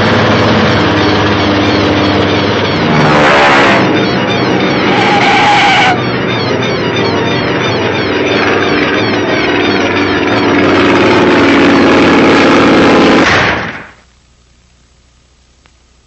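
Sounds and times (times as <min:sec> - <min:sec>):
cartoon sound effects: 0:01.0 - 0:11.2.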